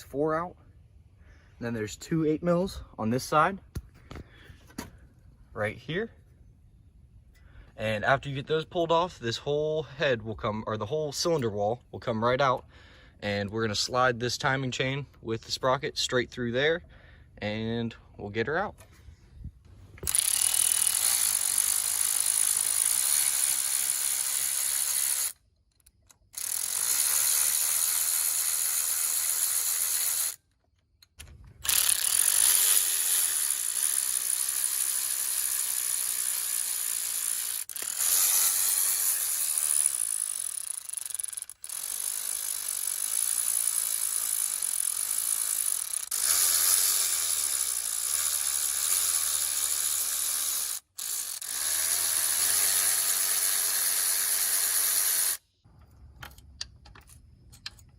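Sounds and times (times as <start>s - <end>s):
ratchet wrench ratcheting: 20.0s - 30.4s, 31.0s - 55.4s.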